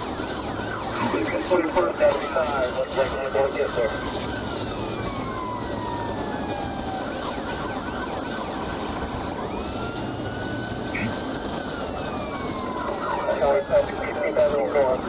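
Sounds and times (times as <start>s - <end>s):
police siren wailing: 0.0s - 15.0s
vehicle road noise: 0.0s - 15.0s.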